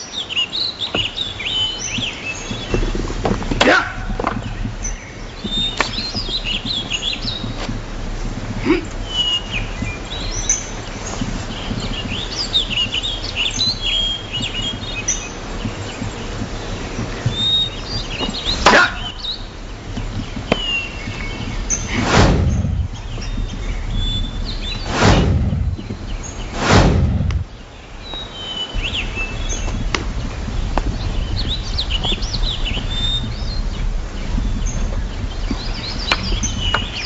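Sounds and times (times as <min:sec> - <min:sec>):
small birds chirping: 0:00.0 - 0:37.0
short rushing sounds: 0:21.7 - 0:27.7
sharp knock: 0:21.9 - 0:23.0, 0:24.9 - 0:25.8, 0:26.6 - 0:27.5.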